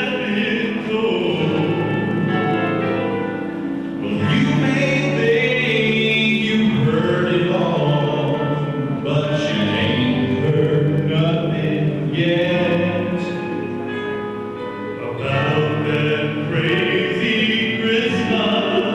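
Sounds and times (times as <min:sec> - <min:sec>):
choir singing: 0:15.0 - 0:18.9.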